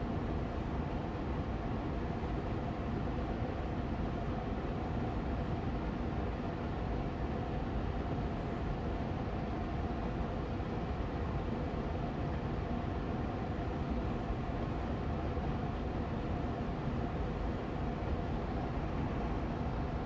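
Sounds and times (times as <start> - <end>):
air purifier fan whooshing: 7.7 - 20.0.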